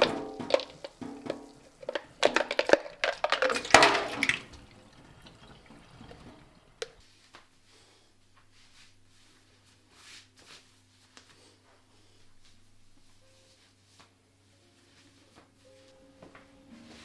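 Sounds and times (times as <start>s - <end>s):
clinks and knocks: 0.0s - 4.4s
water splashing in a sink: 0.0s - 7.0s.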